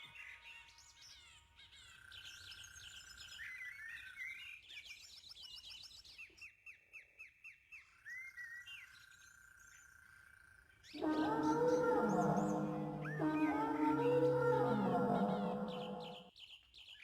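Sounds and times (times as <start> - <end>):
whistle-like bird note: 11.0 - 16.2.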